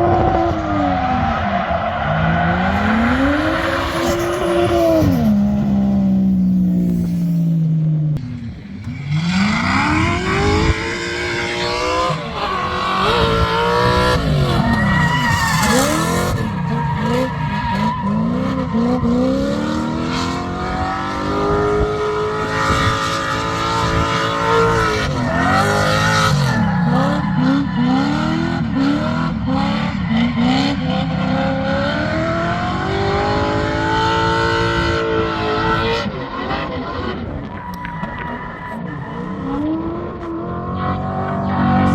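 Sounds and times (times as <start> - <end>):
car engine revving hard: 8.8 - 36.6.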